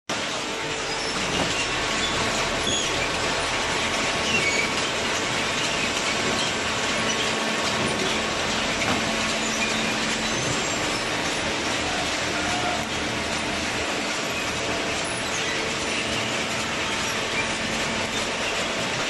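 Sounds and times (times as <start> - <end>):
hydraulic baler press running: 0.1 - 19.0
short high squeaks: 8.8 - 11.3.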